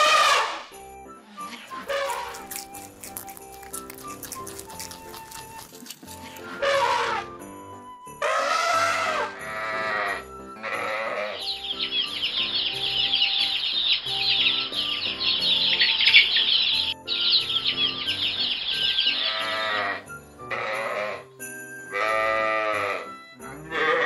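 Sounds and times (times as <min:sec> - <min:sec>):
background music: 0:00.0 - 0:24.0
sheep bleating: 0:08.2 - 0:11.4, 0:19.2 - 0:21.2, 0:21.9 - 0:24.0
chicks peeping: 0:11.4 - 0:19.5.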